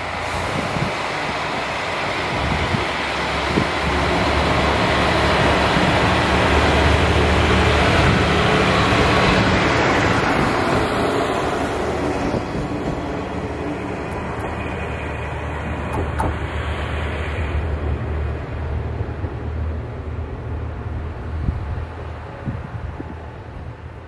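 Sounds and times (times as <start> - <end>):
diesel railcar passing: 0.0 - 24.0.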